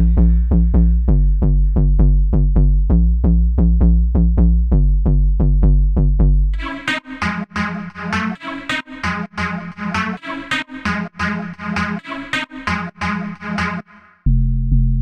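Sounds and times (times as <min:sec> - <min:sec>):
deep sustained synth bass: 0:00.0 - 0:06.8, 0:14.3 - 0:15.0
bright choppy synth pattern: 0:06.6 - 0:14.2
short repeated synth notes: 0:06.6 - 0:14.2.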